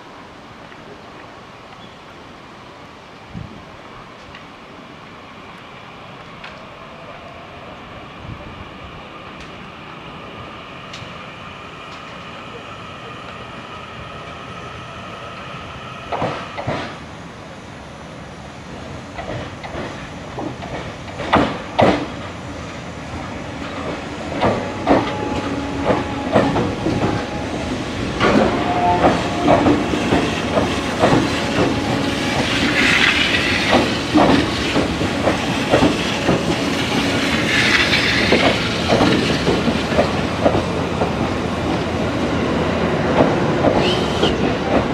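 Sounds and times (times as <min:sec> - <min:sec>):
train hissing: 0:05.8 - 0:44.9
train wheels clacking on rails: 0:15.3 - 0:17.0, 0:19.1 - 0:44.9
train wheel squeal: 0:43.8 - 0:44.8.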